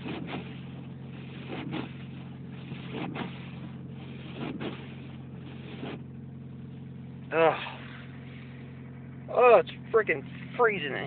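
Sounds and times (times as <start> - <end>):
windshield wipers sweeping: 0.0 - 6.7
car engine idling: 0.0 - 11.0.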